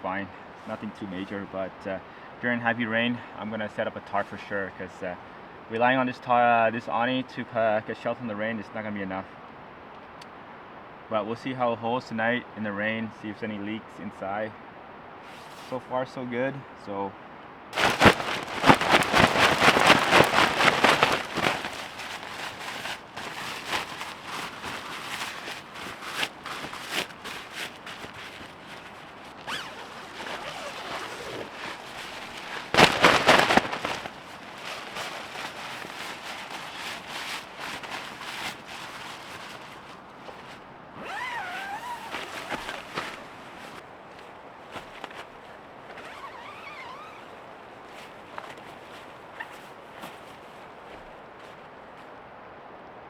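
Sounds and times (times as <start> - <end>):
camping gear clicking and rustling: 15.2 - 15.7, 17.8 - 52.3.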